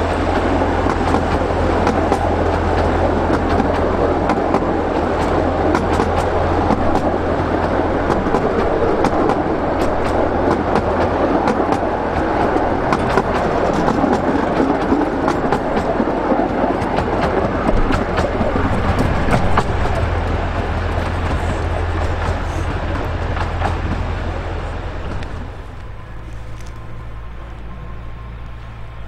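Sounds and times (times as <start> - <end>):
train coaches rumbling past: 0.0 - 29.0
wheels clicking over rail joints: 0.0 - 29.0.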